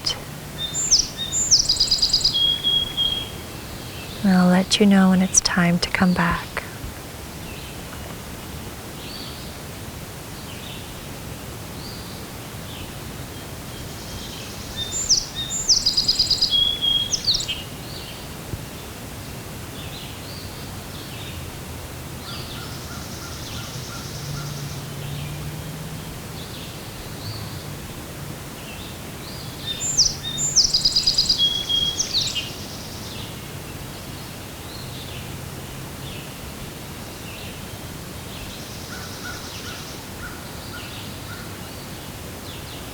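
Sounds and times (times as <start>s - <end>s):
bird singing complex song: 0.0s - 4.2s, 13.7s - 18.2s, 28.7s - 33.4s
birds calling faintly: 0.0s - 6.5s
steady outdoor hiss: 0.0s - 42.9s.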